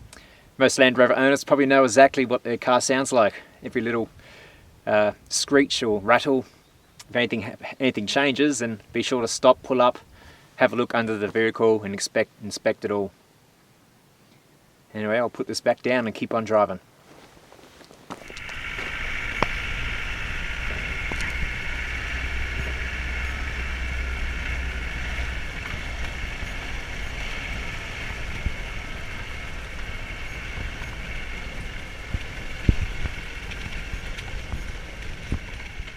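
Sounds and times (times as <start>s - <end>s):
car engine and road noise: 18.0s - 35.9s.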